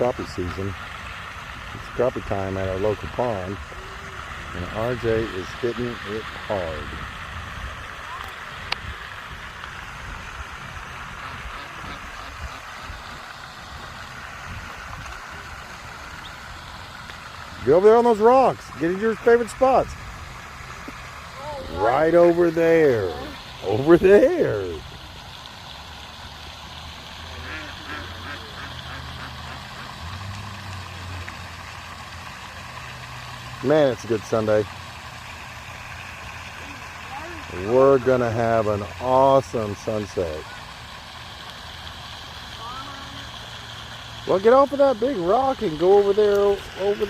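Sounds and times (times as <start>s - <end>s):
constant hiss: 0.0s - 47.0s
duck quacking: 11.2s - 12.6s, 27.4s - 30.0s
low engine hum: 19.9s - 37.7s.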